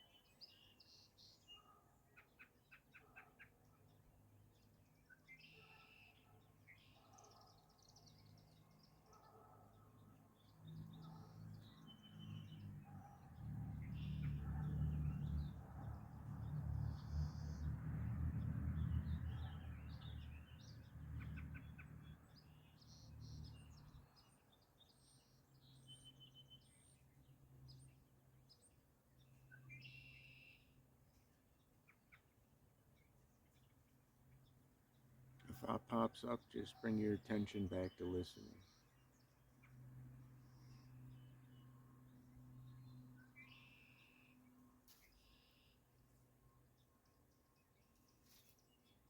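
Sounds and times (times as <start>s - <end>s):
wild birds chirping: 0.0s - 49.0s.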